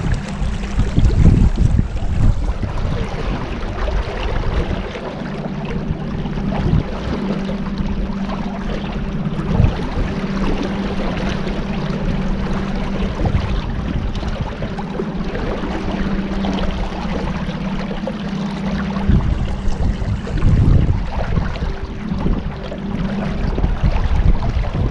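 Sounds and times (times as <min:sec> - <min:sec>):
motorboat engine cruising: 0:00.0 - 0:24.9
water rushing past hull: 0:00.0 - 0:24.9.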